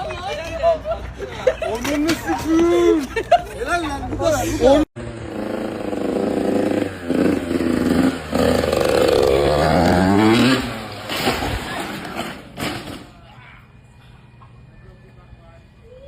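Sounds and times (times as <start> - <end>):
motorcycle engine revving: 5.0 - 11.1.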